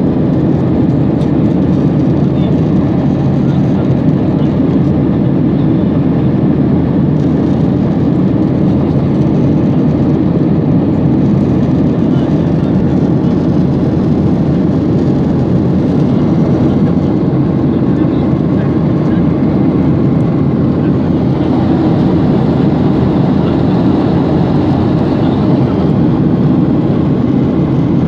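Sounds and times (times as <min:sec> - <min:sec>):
airliner cabin roar: 0:00.0 - 0:28.0.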